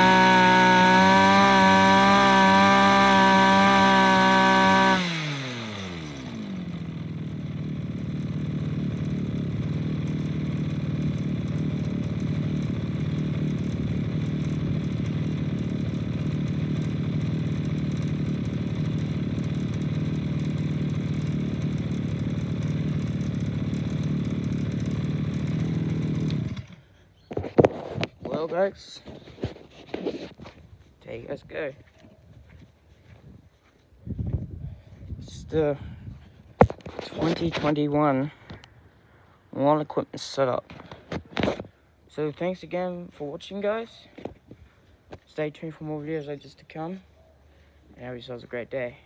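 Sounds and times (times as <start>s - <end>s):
two-stroke edger engine revving: 0.0s - 26.9s, 36.6s - 37.8s
person talking: 28.3s - 29.1s, 31.0s - 31.9s, 35.2s - 35.9s, 37.0s - 38.4s, 39.5s - 40.7s, 42.1s - 44.2s, 45.3s - 47.1s, 48.0s - 49.0s.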